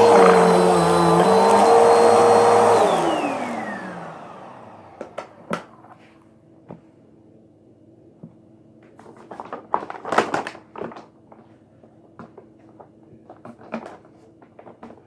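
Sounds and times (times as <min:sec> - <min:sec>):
electric motor whining: 0:00.0 - 0:05.4.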